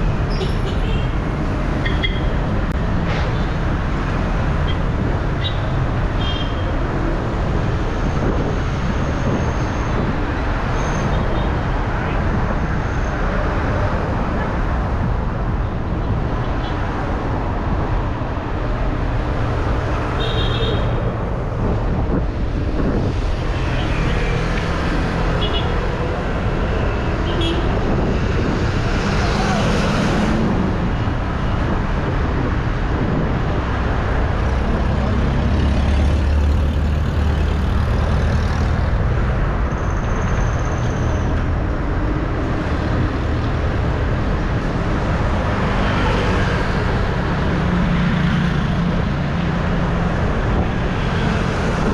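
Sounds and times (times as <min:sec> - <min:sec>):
passing vehicle engines: 0:00.0 - 0:51.9
wind and road noise: 0:00.0 - 0:51.9.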